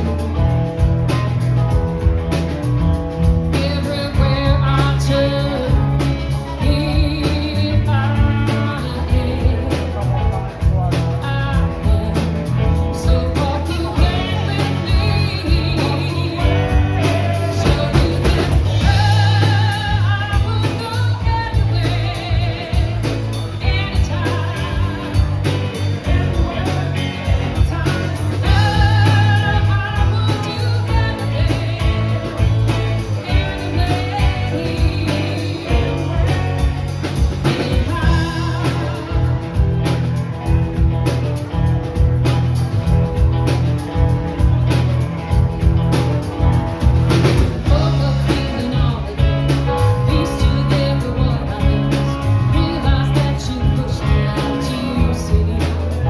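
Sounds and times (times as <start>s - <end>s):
blues rock band playing: 0.0s - 56.0s
person singing: 2.4s - 40.6s, 45.9s - 56.0s.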